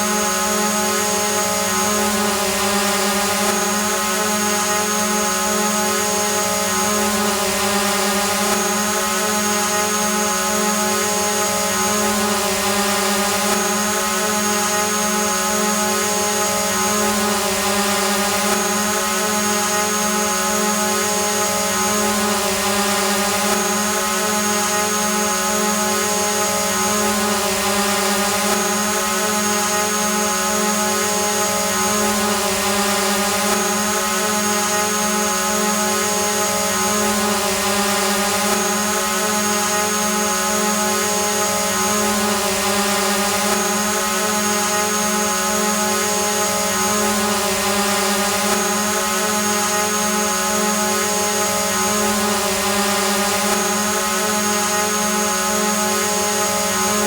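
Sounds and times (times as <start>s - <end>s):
drone propellers buzzing: 0.0s - 57.0s.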